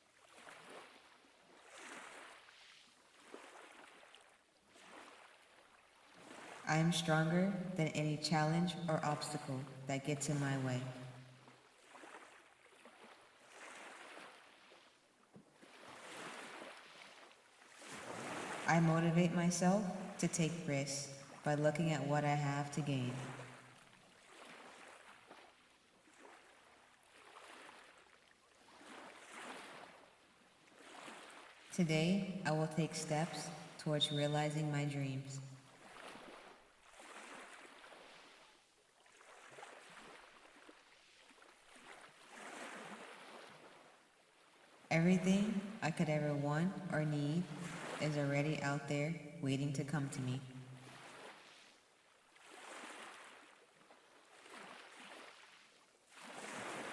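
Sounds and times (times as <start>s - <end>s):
faint ocean waves: 0.0s - 56.9s
ocean waves washing in: 15.7s - 28.0s, 44.8s - 49.4s, 52.4s - 53.6s, 54.4s - 56.9s.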